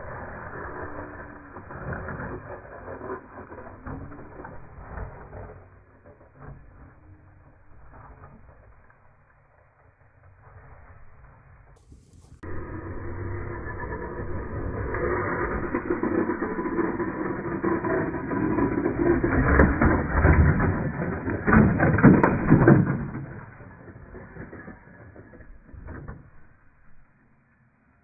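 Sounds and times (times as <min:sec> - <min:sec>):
rc truck motor whine: 0:00.0 - 0:06.4, 0:11.8 - 0:27.7
tyre and chassis rattle: 0:11.8 - 0:12.5.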